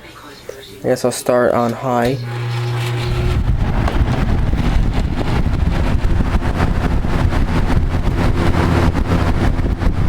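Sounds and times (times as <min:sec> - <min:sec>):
box fan rushing air: 0:02.2 - 0:10.0
air buffeting microphone: 0:02.9 - 0:10.0.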